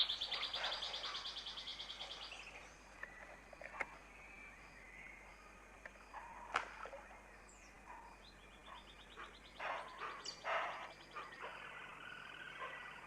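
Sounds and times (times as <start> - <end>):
harsh noisy bird calls: 0.0 - 2.5, 7.2 - 13.0
faint forest ambience: 0.0 - 13.0.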